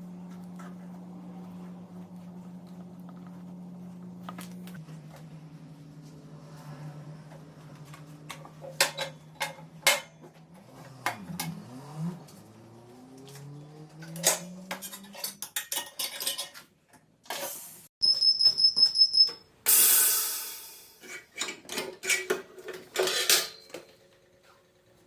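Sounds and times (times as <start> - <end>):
metal tools clinking: 8.3 - 10.3, 14.0 - 16.7, 21.0 - 23.9.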